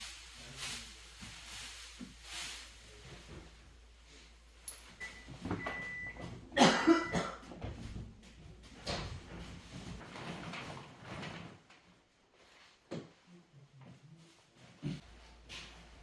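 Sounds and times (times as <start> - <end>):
soft hisses: 0.0 - 5.3.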